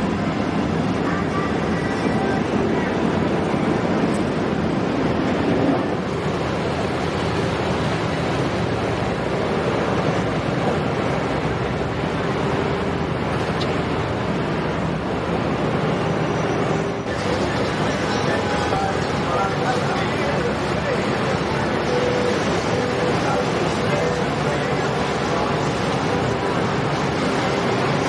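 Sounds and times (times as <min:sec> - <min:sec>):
wind on microphone: 0:00.0 - 0:18.9
boat engines running: 0:00.0 - 0:28.0
rushing water: 0:00.0 - 0:28.0.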